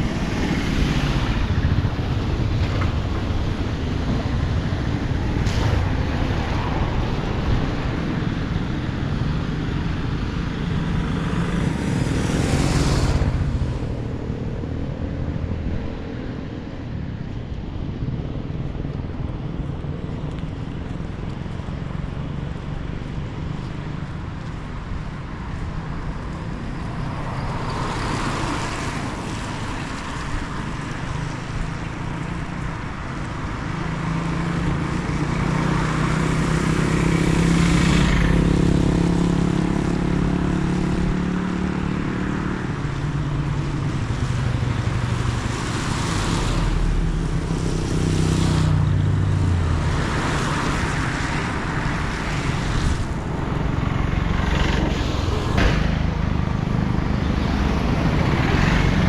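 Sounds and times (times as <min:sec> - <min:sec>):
motor vehicle engine running: 0:29.2 - 0:59.0.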